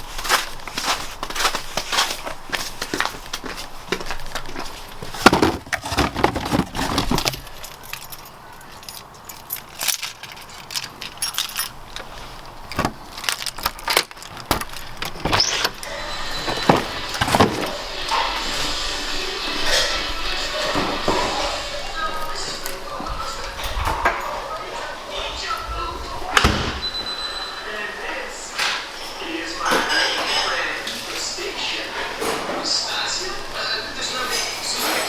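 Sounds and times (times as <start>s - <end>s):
handling clicks and knocks: 2.8s - 18.3s
keys jangling: 6.2s - 15.8s.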